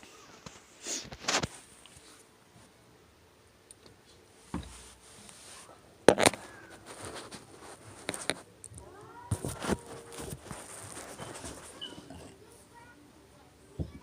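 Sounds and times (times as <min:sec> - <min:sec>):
clothes rustling: 0:04.4 - 0:08.5, 0:09.2 - 0:12.2.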